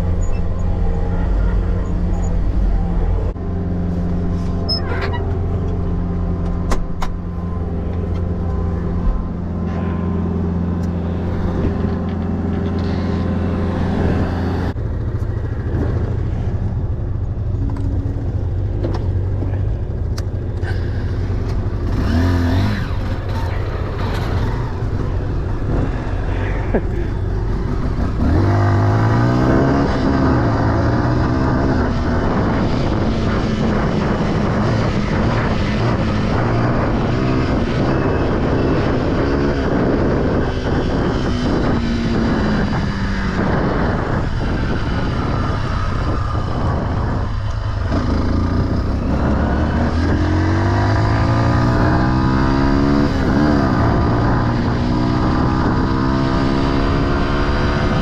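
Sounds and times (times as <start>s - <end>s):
off-road vehicle engine revving: 20.6s - 58.0s.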